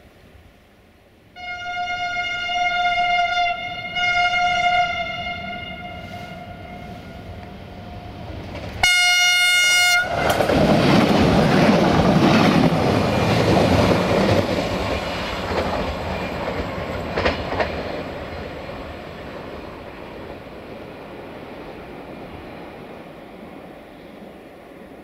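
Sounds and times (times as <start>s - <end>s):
train passing with engine noise: 0.0s - 25.0s
train horn blast: 1.4s - 7.5s, 8.8s - 10.4s.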